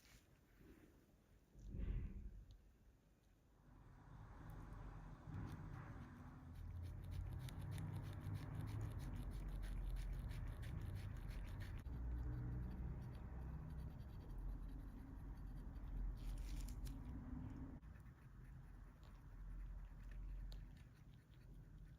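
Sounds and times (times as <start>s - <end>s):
low steady hum: 0.0s - 21.9s
light scratching: 4.7s - 21.9s.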